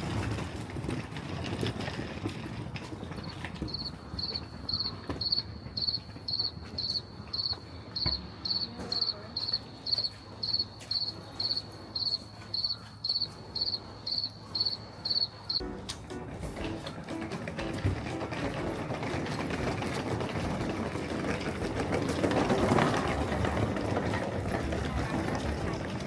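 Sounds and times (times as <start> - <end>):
insect chirping: 9.4 - 15.6.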